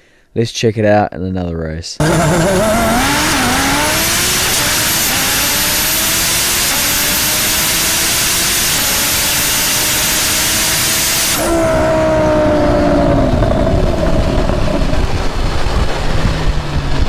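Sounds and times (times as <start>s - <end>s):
car engine accelerating: 2.0s - 17.0s
road noise: 2.0s - 17.0s
rushing wind: 11.2s - 17.0s.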